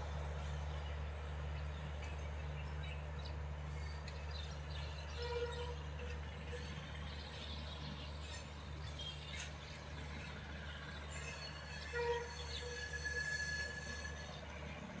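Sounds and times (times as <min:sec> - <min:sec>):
train rumbling: 0:00.0 - 0:15.0
thin wheel squeals: 0:08.2 - 0:14.7.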